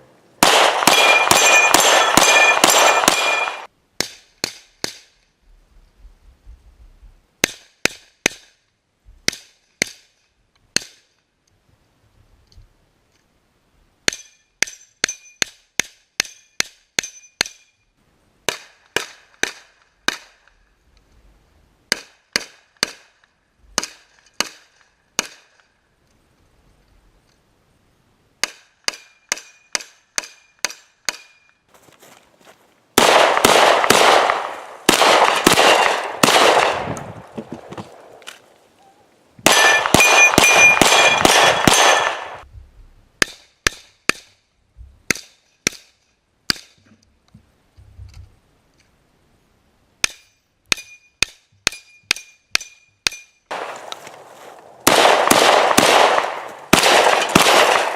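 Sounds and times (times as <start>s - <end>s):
gunshots: 0.4s - 4.6s, 33.0s - 38.2s, 39.4s - 42.4s, 53.5s - 57.9s
steel targets ringing: 0.8s - 3.7s, 39.5s - 42.4s.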